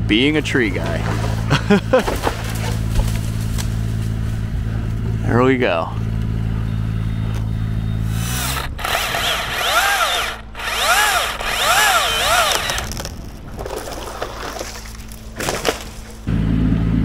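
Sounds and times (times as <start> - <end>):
low engine drone: 0.0 - 17.0
small motor revving: 7.6 - 13.2.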